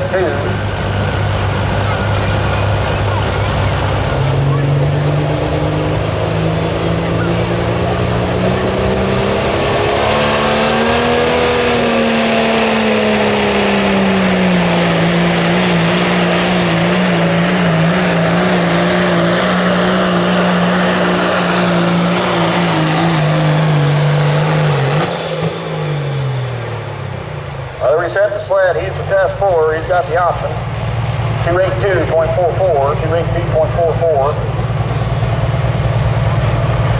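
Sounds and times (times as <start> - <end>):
turbo whistle: 0.0 - 4.8
pickup truck engine at full throttle: 0.0 - 36.9.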